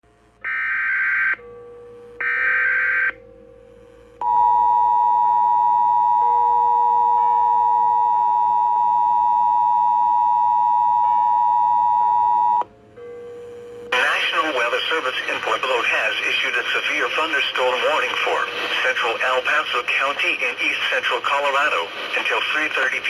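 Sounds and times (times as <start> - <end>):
two-tone attention signal: 4.2 - 12.7.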